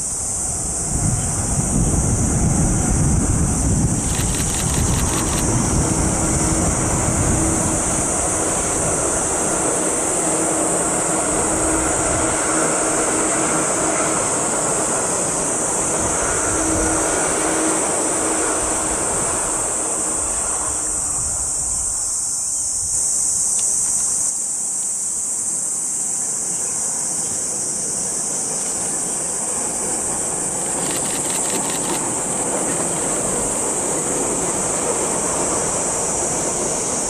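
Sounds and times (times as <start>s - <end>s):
electric train rumbling: 0.0s - 37.0s
insects buzzing: 0.0s - 37.0s
quick run of clicks: 4.0s - 5.5s, 30.7s - 32.1s.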